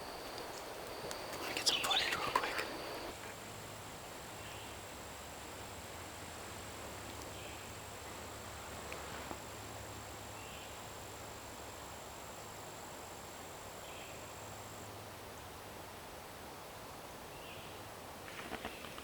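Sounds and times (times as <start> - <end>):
high-pitched insect whine: 0.0 - 3.1
steady noise haze: 0.0 - 18.3.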